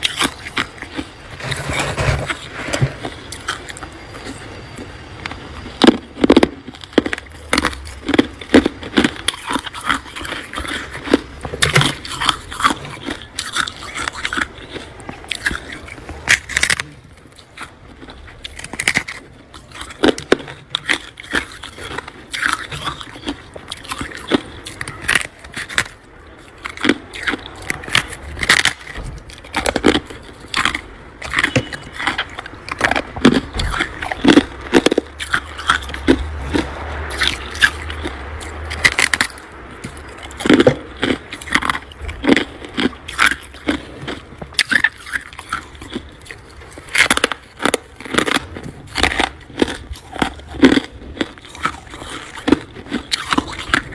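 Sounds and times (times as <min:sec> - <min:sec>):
chewing crunchy frost: 0:00.0 - 0:53.9
frost being scraped: 0:01.3 - 0:03.0.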